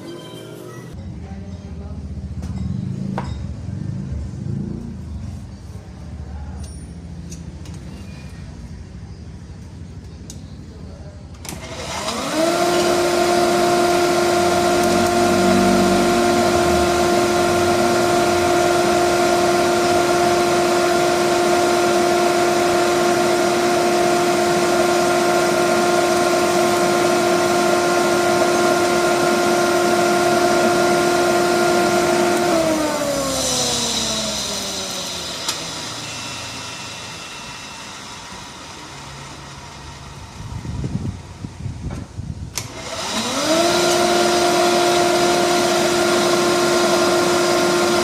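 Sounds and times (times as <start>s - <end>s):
electric workshop tool whining: 11.4s - 41.5s, 42.5s - 48.0s.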